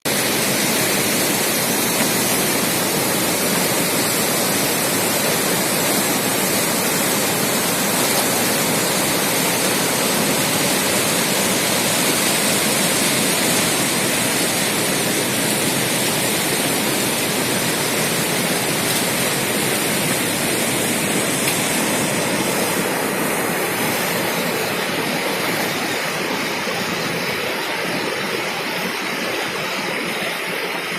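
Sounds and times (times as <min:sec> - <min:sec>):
waterfall rushing: 0:00.0 - 0:30.9.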